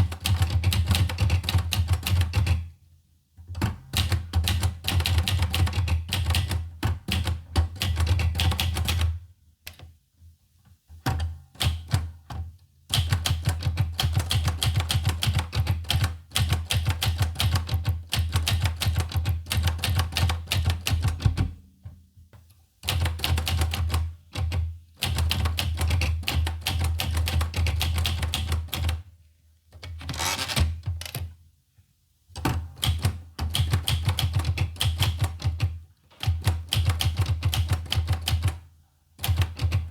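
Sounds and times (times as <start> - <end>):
manual typewriter typing: 0.0 - 2.6, 12.9 - 21.4, 22.8 - 29.0, 29.8 - 31.3, 32.8 - 38.6, 39.2 - 39.9.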